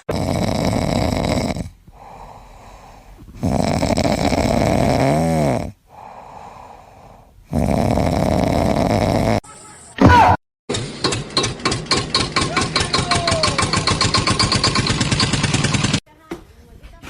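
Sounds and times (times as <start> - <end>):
pet snoring loudly: 0.0 - 9.4
quiet breaths: 0.2 - 9.9.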